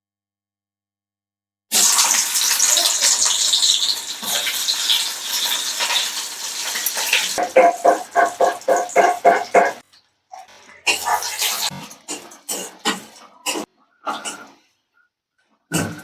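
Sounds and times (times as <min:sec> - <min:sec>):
water running from a tap: 0:01.7 - 0:09.8, 0:10.6 - 0:13.2.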